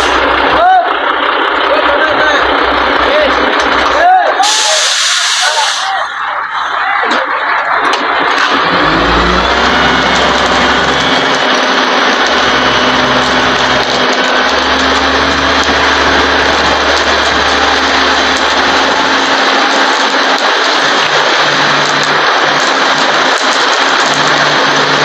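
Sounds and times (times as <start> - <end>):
loud engine and machinery noise: 0.0 - 25.0
low drone: 8.5 - 25.0.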